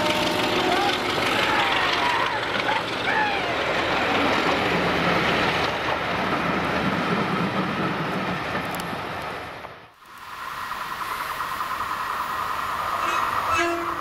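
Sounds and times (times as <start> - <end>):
train wheels clattering on rails: 0.0 - 9.8
diesel locomotive drone: 0.0 - 14.0.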